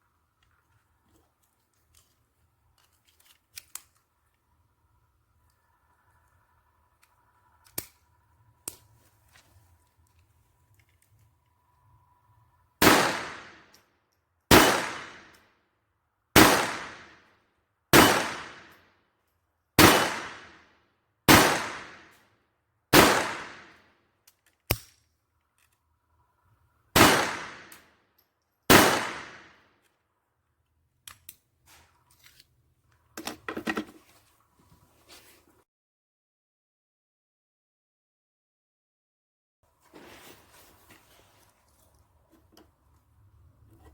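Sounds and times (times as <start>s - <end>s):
pistol shots ringing: 12.8s - 13.6s, 14.5s - 15.3s, 16.4s - 17.1s, 18.0s - 18.7s, 19.8s - 20.6s, 21.3s - 22.1s, 22.9s - 23.7s, 27.0s - 27.8s, 28.7s - 29.5s.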